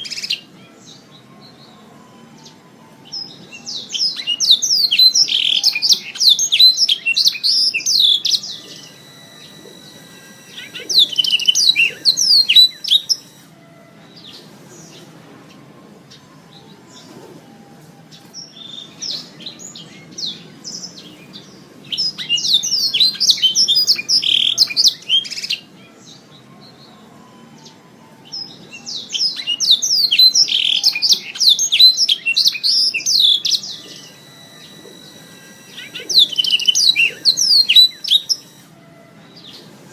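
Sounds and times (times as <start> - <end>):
canary singing trills: 0.0 - 13.5, 14.1 - 39.9
faint chirps: 3.4 - 13.5, 29.6 - 38.7.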